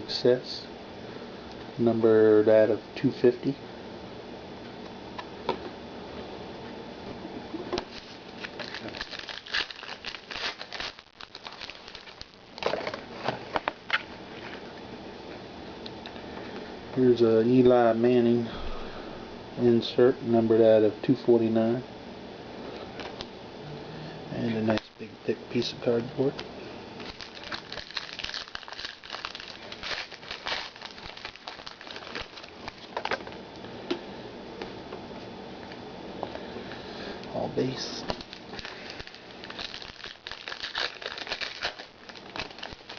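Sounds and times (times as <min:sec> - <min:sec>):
trading cards shuffled and crinkling: 0:07.7 - 0:14.6, 0:27.0 - 0:33.4, 0:37.6 - 0:42.9.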